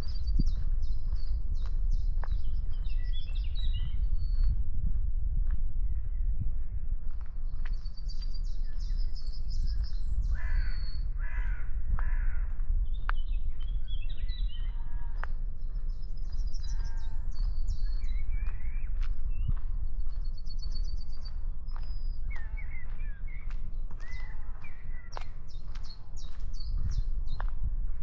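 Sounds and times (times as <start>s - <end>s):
steady low rumble: 0.0s - 28.0s
harsh low bird calls: 7.5s - 28.0s.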